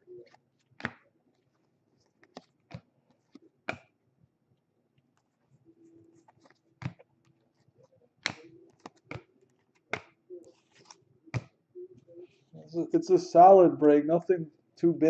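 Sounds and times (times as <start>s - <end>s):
light rustling of cards: 0.1s - 3.9s, 5.0s - 11.5s.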